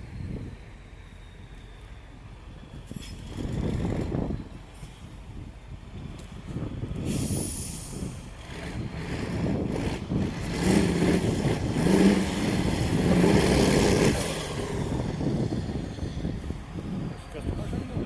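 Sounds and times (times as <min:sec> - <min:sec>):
rumble of noise: 0:00.0 - 0:18.0
diesel truck engine revving: 0:06.9 - 0:17.3.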